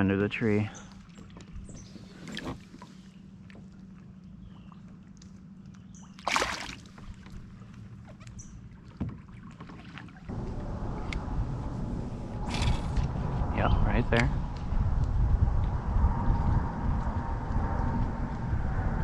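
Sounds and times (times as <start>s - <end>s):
steady low hum: 0.0s - 19.0s
knocks and rustles in a kayak: 0.9s - 5.5s, 6.8s - 11.1s.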